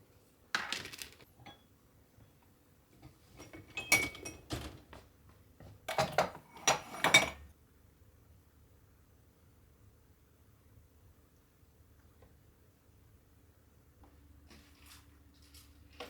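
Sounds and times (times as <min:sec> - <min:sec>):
dishes clinking and knocking: 0:03.3 - 0:04.8, 0:05.9 - 0:07.5.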